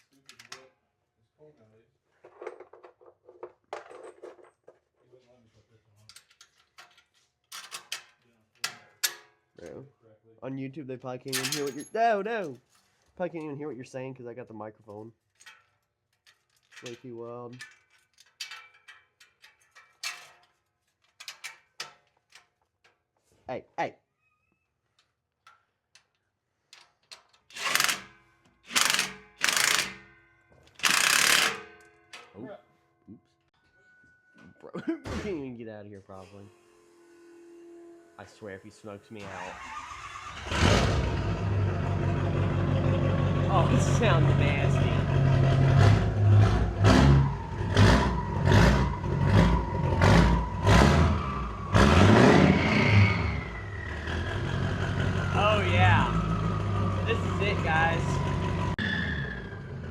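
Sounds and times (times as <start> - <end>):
diesel engine revving: 39.5 - 59.9.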